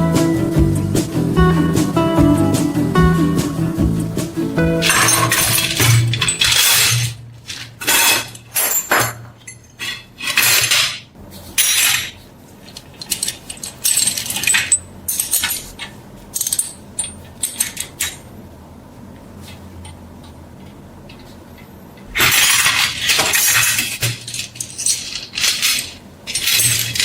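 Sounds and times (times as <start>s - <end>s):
metal scrapes and clinks: 4.8s - 7.2s, 7.8s - 12.2s, 22.2s - 27.0s.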